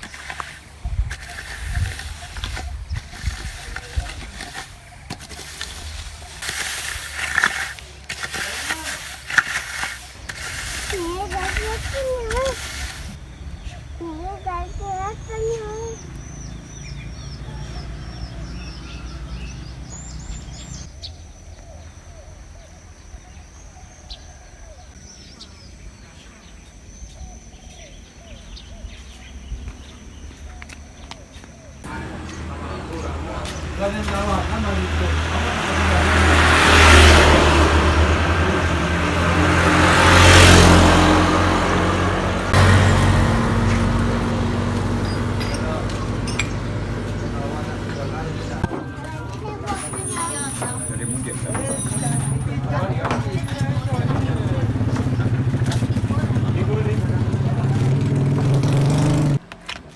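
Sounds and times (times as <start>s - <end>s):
traffic engine hum: 0.0s - 21.0s, 29.8s - 59.9s
bird chirping: 0.0s - 35.3s, 39.9s - 59.3s
vehicle passing close by: 31.9s - 59.4s.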